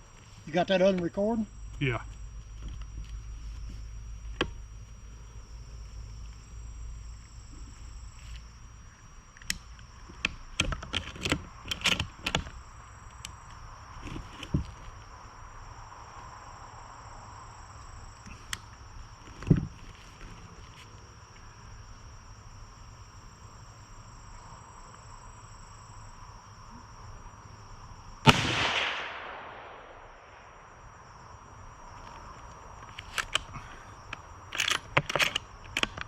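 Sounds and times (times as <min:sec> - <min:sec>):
dull gunshot thump: 0:28.3 - 0:30.1
sharp gunshot with echo: 0:28.3 - 0:30.4.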